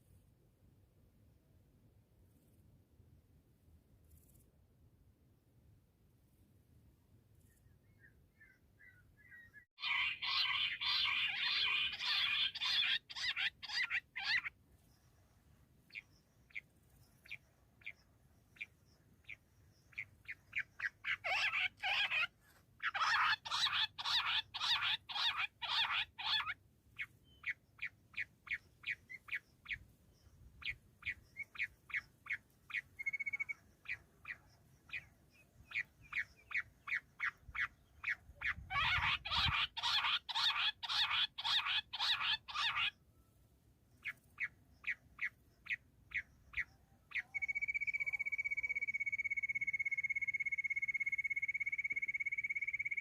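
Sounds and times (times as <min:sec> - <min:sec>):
quail calling: 0:08.4 - 0:14.5, 0:18.6 - 0:26.6, 0:35.7 - 0:43.0, 0:44.0 - 0:53.0.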